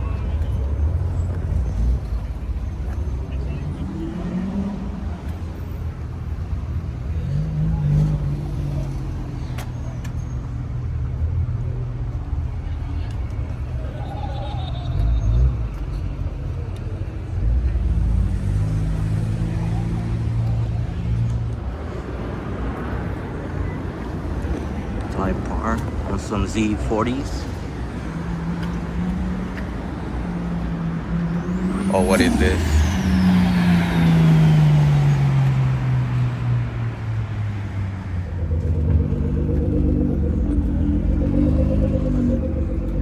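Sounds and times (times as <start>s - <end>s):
outdoor background noise: 0.0s - 43.0s
car engine rumbling: 15.4s - 43.0s.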